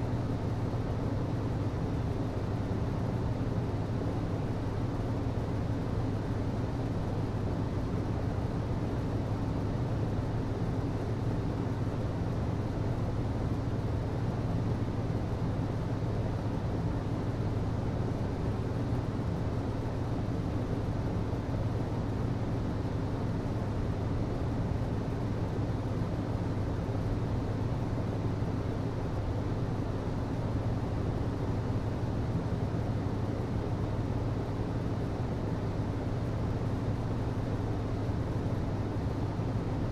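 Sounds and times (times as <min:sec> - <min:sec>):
hvac low hum: 0:00.0 - 0:39.9.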